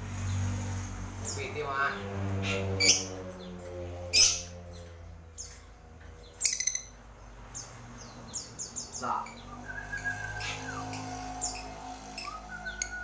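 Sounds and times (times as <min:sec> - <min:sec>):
small bird chirping: 0:04.2 - 0:13.0.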